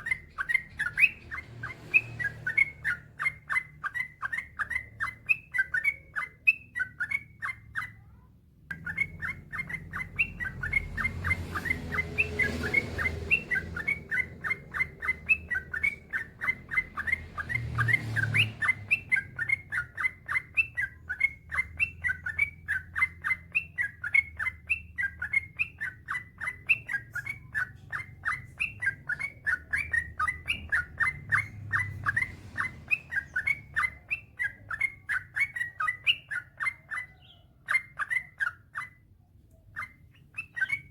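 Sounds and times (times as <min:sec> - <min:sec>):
bird singing rapid chirps: 0:00.0 - 0:40.9.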